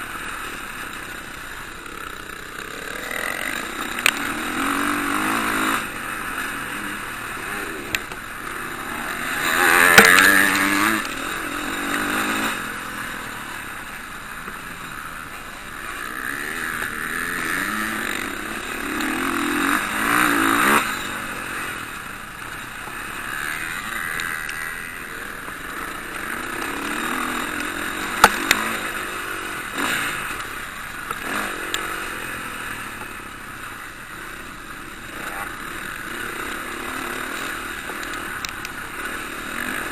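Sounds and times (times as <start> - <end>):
motocross bikes revving past: 0.0 - 39.9
sharp clicks: 37.9 - 38.8.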